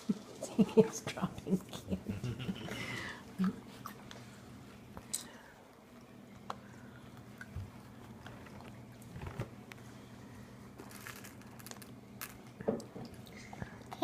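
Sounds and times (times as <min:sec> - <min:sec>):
low steady hum: 0:00.0 - 0:14.0
candy being chewed and crunched: 0:10.8 - 0:14.0.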